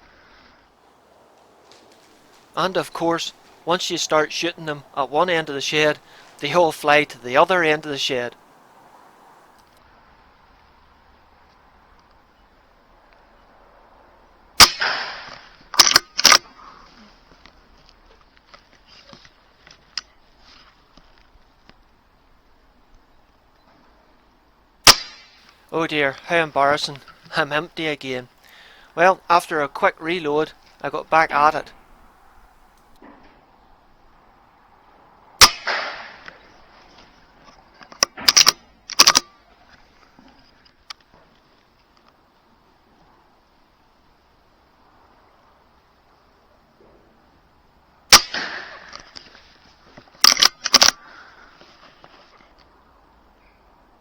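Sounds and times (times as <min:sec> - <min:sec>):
air rifle shot: 0:14.6 - 0:16.4, 0:24.9 - 0:25.4, 0:35.4 - 0:36.2, 0:48.1 - 0:48.9
sharp clicks: 0:15.8 - 0:16.4, 0:37.9 - 0:39.3, 0:50.2 - 0:51.0.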